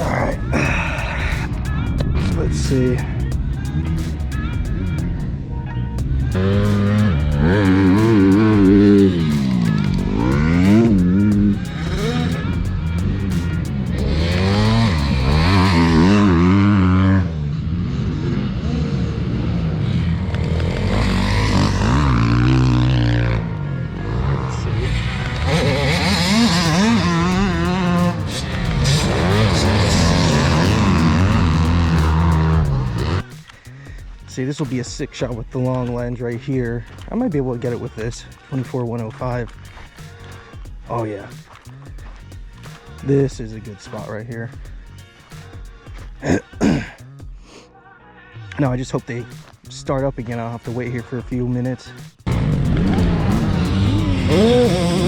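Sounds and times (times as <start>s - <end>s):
dirt bike engine revving: 0.0s - 5.3s, 6.0s - 33.6s, 51.6s - 55.0s
music with a steady beat: 0.0s - 5.3s, 6.0s - 16.4s, 25.9s - 47.6s, 48.6s - 55.0s.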